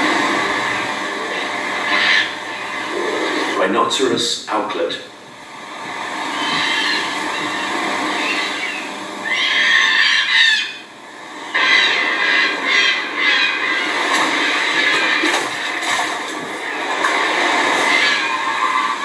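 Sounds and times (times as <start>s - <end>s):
hornbill squawking: 0.0s - 4.2s, 5.8s - 19.0s.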